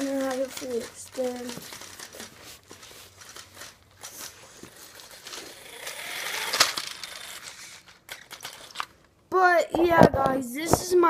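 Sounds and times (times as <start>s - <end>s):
handling rustle: 0.0s - 9.1s
small clicks: 5.8s - 9.1s.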